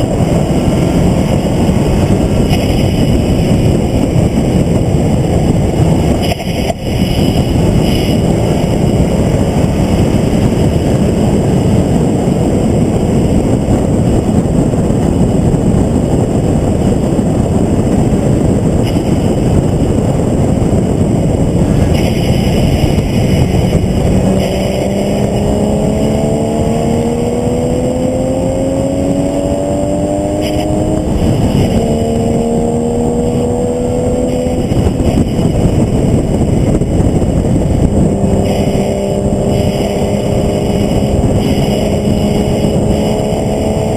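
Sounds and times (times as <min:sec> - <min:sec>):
wind and road noise: 0:00.0 - 0:43.9
race car engine accelerating: 0:21.1 - 0:35.5, 0:37.8 - 0:43.9.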